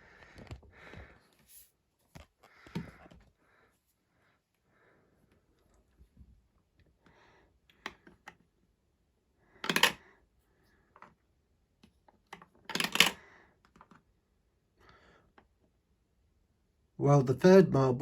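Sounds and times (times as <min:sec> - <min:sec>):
marbles clattering on plastic track: 0:09.6 - 0:10.0, 0:12.7 - 0:13.2.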